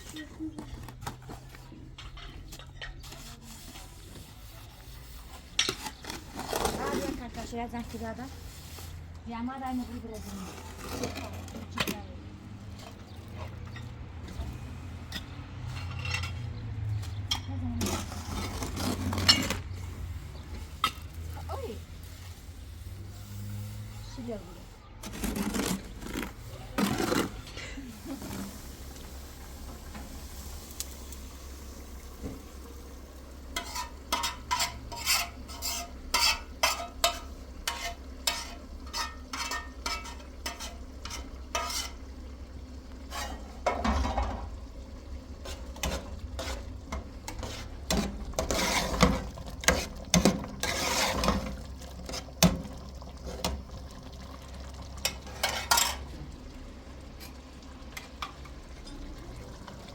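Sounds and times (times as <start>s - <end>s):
stirring and scraping in container: 0.0s - 30.2s, 32.2s - 53.7s, 55.0s - 56.2s.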